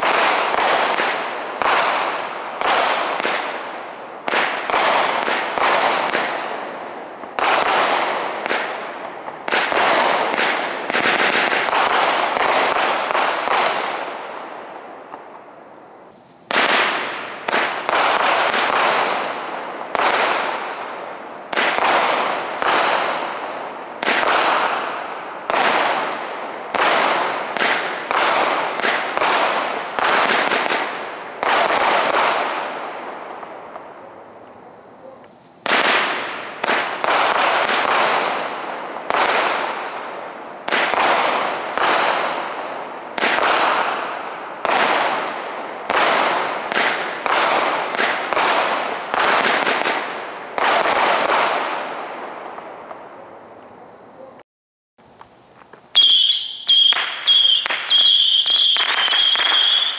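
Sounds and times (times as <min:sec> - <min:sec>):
fireworks cake sharp reports: 0:00.0 - 0:14.0, 0:16.0 - 0:23.4, 0:33.8 - 0:40.1, 0:56.0 - 0:59.9.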